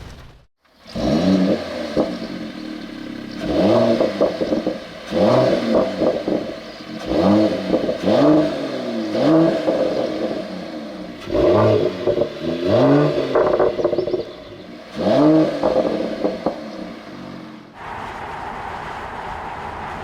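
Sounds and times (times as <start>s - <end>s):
car engine revving: 0.7s - 20.0s.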